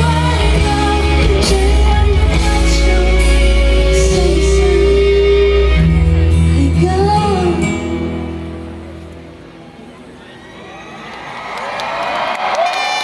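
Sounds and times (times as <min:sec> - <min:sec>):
pop-rock band playing: 0:00.0 - 0:09.3.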